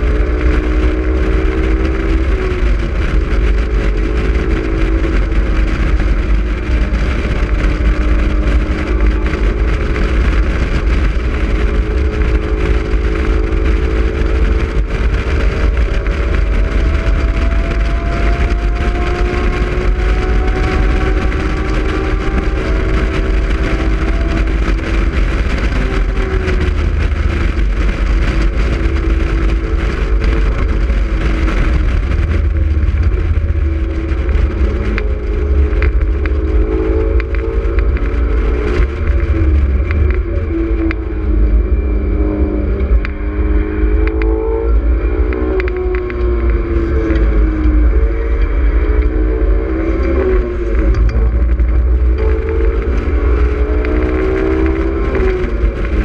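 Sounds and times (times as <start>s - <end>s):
car engine accelerating: 0.0s - 56.0s
wind buffeting: 0.0s - 56.0s.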